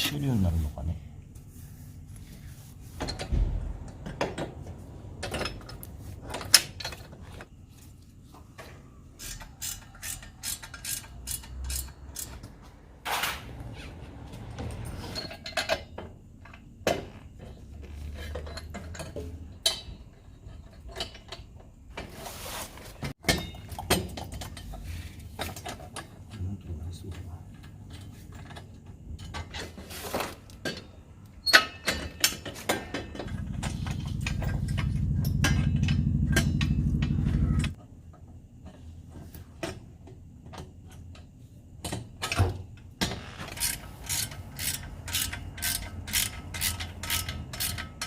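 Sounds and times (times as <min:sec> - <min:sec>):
hand tools clicking on metal: 0:09.2 - 0:12.6, 0:43.5 - 0:48.0.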